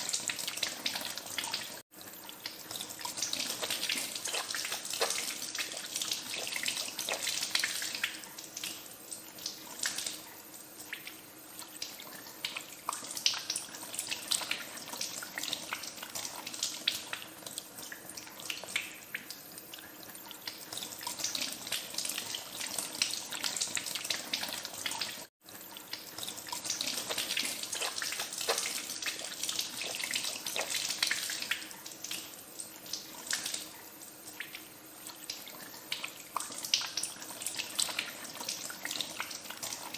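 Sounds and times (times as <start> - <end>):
hands washing with splashing: 2.4 - 10.2, 25.9 - 32.3.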